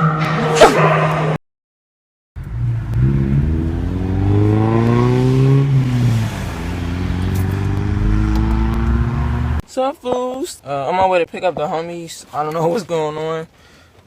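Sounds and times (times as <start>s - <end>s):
car engine accelerating: 2.4s - 9.6s.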